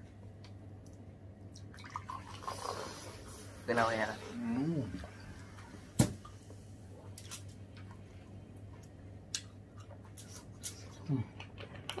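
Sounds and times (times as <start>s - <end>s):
wet chewing: 8.7s - 12.0s.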